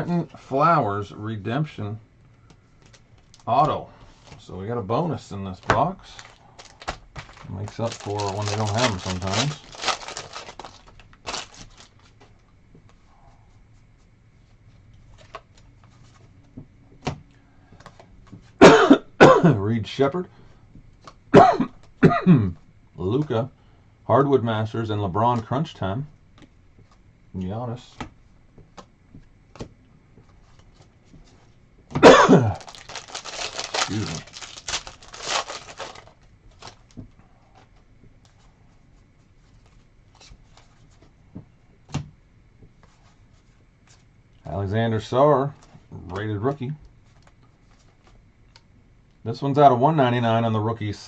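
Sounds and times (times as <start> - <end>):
crinkling: 2.3 - 4.5, 5.5 - 12.6, 28.8 - 41.2
trading cards rustling: 5.5 - 12.3, 32.4 - 37.0
man coughing: 18.6 - 19.6, 21.3 - 22.6, 32.0 - 32.7.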